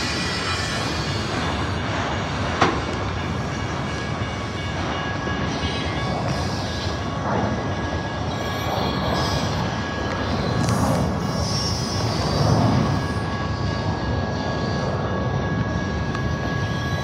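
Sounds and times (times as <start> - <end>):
freight train rolling past: 0.0 - 17.0.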